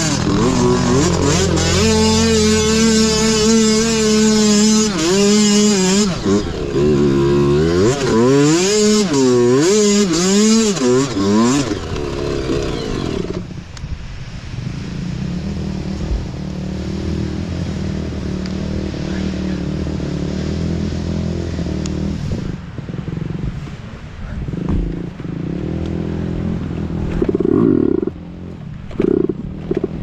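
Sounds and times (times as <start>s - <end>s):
mini bike engine revving: 0.0s - 13.6s, 24.5s - 30.0s.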